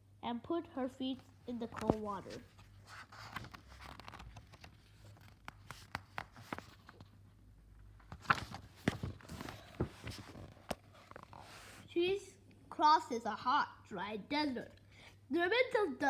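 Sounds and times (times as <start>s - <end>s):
book pages turning: 1.5s - 7.2s, 8.0s - 11.9s.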